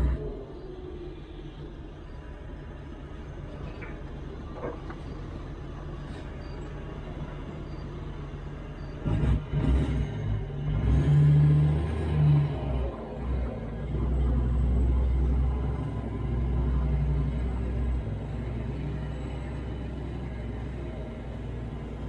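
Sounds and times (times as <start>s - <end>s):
heavy diesel engine revving: 0.0s - 0.4s, 9.0s - 22.0s.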